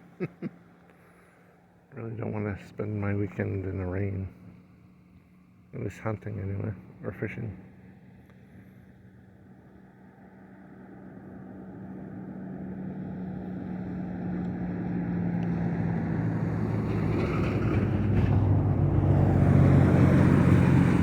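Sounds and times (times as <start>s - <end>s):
road noise: 0.0s - 21.0s
vehicle engine hum: 0.0s - 21.0s.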